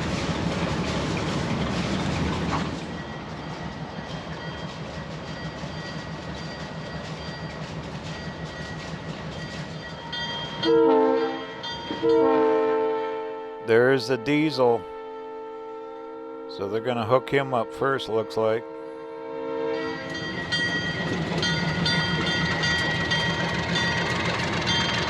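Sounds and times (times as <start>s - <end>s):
locomotive rumbling: 0.0s - 12.7s, 19.7s - 25.0s
train horn blast: 10.6s - 20.3s.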